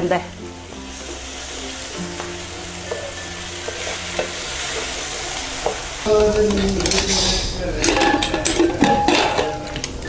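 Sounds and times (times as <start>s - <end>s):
masala sizzling in oil: 0.0s - 10.0s
spatula stirring and scraping pan: 0.9s - 6.0s.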